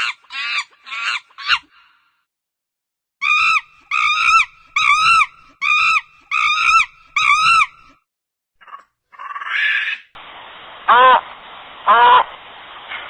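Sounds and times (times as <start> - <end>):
animal calling high-pitched: 3.2 - 7.7, 8.6 - 10.1.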